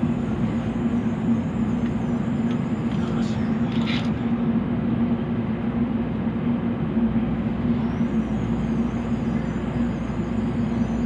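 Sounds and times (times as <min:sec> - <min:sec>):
train rushing noise with low hum: 0:00.0 - 0:11.0
faint wavering high tones: 0:07.7 - 0:11.0.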